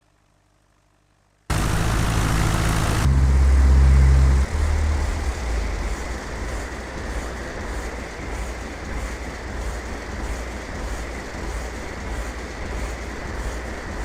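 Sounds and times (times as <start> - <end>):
aircraft engine drone: 1.5 - 8.2.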